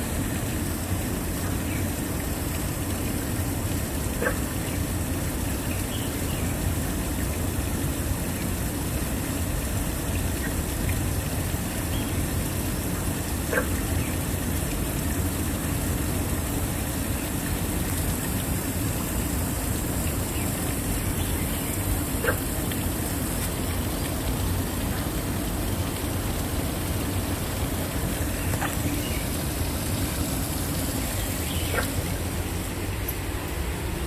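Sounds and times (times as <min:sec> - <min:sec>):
waterfall rushing: 0:11.3 - 0:34.0.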